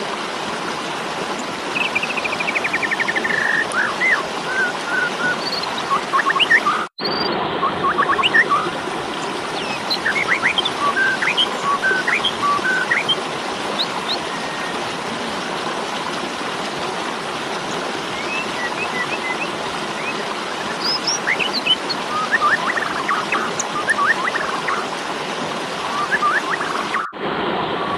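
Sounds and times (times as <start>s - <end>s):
starlings chirping and whistling: 1.8s - 8.7s, 9.6s - 13.2s, 18.2s - 24.8s, 25.9s - 27.2s.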